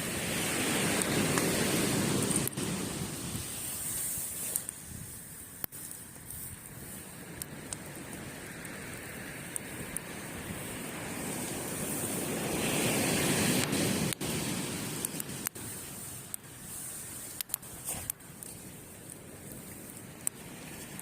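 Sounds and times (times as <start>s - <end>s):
campfire crackles: 0.0s - 21.0s
sea waves breaking on beach: 0.0s - 21.0s.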